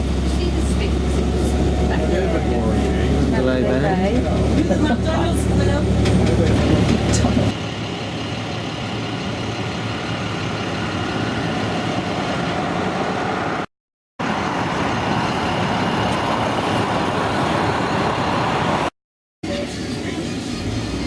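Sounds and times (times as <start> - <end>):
coach engine and road noise: 0.0 - 21.0.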